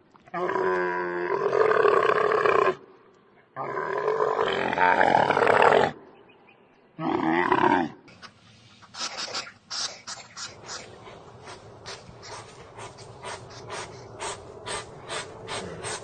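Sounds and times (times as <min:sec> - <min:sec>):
rapid rasping breaths or snorts: 0:08.7 - 0:16.0
large animal roaring: 0:12.6 - 0:16.0.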